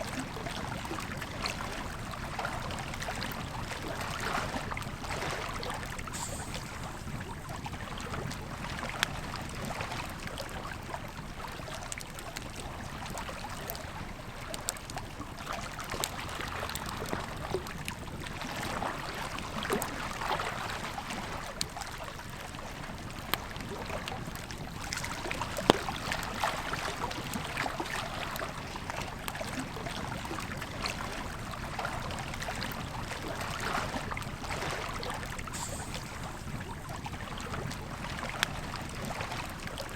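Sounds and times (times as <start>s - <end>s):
river flowing: 0.5s - 9.0s, 11.5s - 39.9s
campfire crackling and popping: 24.2s - 28.4s.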